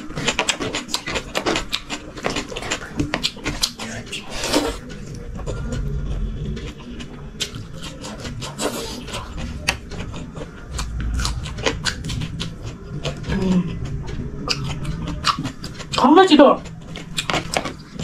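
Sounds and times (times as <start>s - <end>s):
wet chewing and mouth clicks: 0.0s - 18.0s
low handling rumbles: 9.2s - 18.0s.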